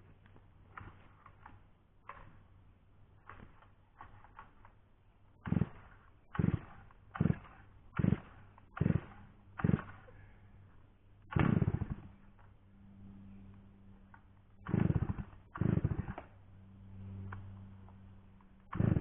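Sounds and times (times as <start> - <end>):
faint steady hum: 0.0 - 19.0
chainsaw pull-start cord pulls: 5.4 - 10.1, 11.4 - 12.1, 14.7 - 16.4, 18.6 - 19.0
engine sputtering: 5.4 - 10.1, 11.3 - 12.5, 14.2 - 19.0.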